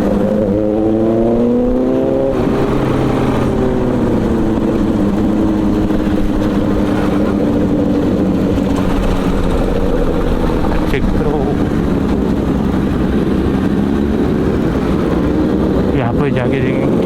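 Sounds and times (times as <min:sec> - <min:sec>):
motorbike engines accelerating: 0:00.0 - 0:17.0.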